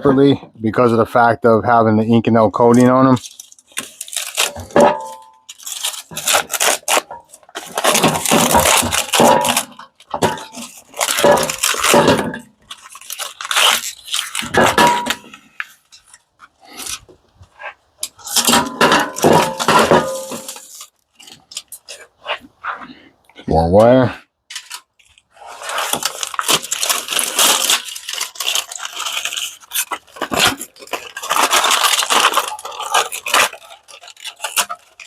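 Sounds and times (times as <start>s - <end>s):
metal parts clattering: 3.2s - 16.2s, 18.0s - 20.9s, 25.5s - 35.0s.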